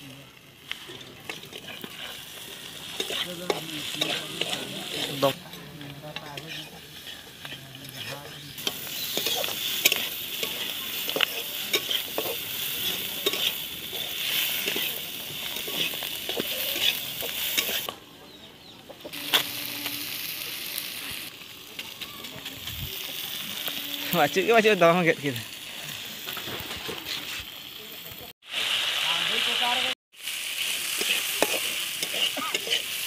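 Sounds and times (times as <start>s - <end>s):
chicken sizzling in a pan: 0.0s - 18.0s, 19.0s - 33.0s
metal spatula scraping a pan: 0.8s - 17.9s, 19.1s - 20.4s, 30.9s - 33.0s.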